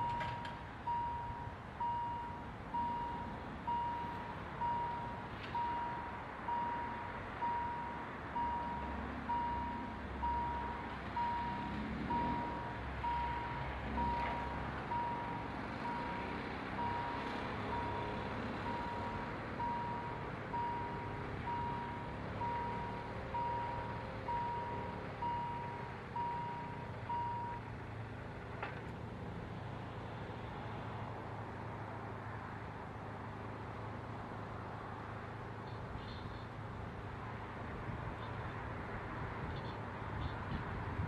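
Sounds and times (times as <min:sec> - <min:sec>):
level crossing signal beeping: 0:00.0 - 0:16.2.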